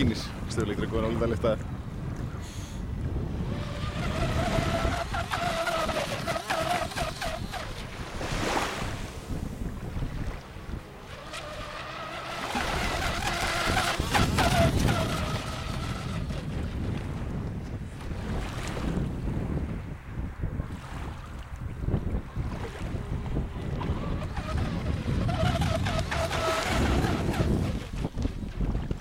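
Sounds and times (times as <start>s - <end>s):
wind rumble on microphone: 0.0s - 29.0s
electric boat motor whining: 2.1s - 17.3s, 21.9s - 29.0s.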